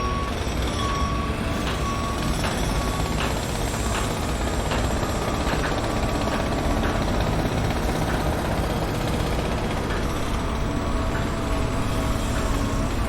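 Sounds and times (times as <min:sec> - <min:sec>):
heavy machinery engines rumbling: 0:00.0 - 0:13.0.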